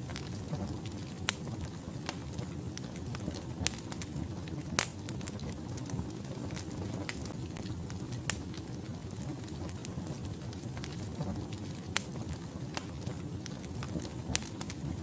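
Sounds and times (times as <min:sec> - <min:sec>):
fire burning in a fireplace: 0:00.0 - 0:15.0
fire crackles and pops: 0:00.0 - 0:15.0.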